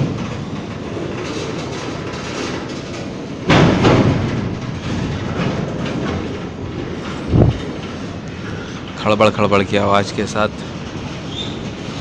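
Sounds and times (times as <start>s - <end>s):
freight train wagons rattling: 0.0s - 12.0s
loud metallic clank: 3.4s - 6.4s.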